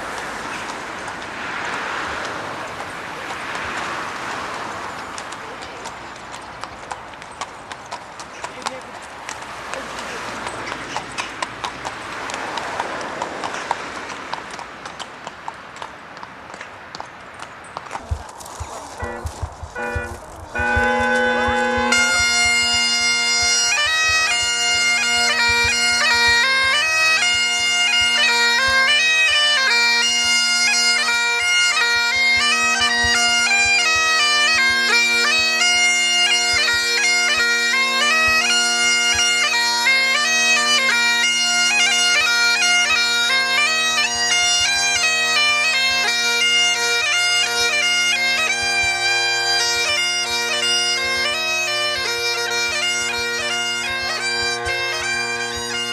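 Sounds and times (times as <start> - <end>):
bagpipe drones: 0.0 - 0.8, 18.9 - 55.9
bagpipe chanter melody: 19.0 - 55.9.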